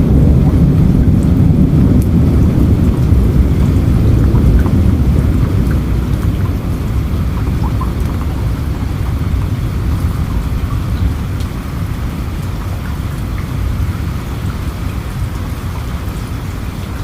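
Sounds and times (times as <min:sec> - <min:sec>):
rolling thunder rumble: 0:00.0 - 0:17.0
steady rain: 0:00.0 - 0:17.0
drops ticking: 0:02.9 - 0:11.5.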